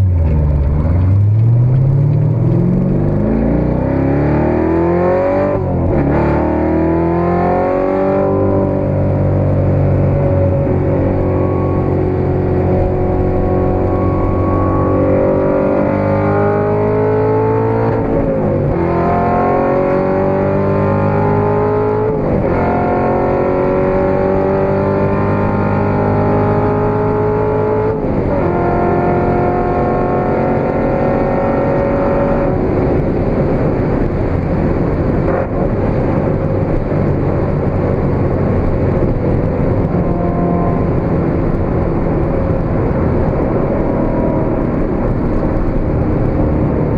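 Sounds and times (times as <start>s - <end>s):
car engine accelerating: 0.0s - 46.9s
road and wind noise: 0.0s - 46.9s.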